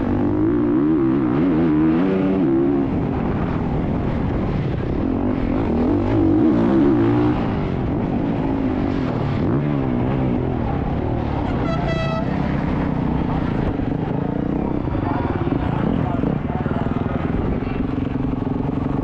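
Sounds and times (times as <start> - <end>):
dirt bike engine revving: 4.8 - 17.3.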